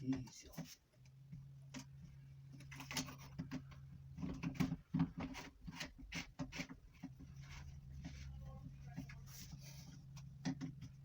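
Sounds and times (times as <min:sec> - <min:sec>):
plastic pipe clicks and knocks: 0:10.3 - 0:11.0.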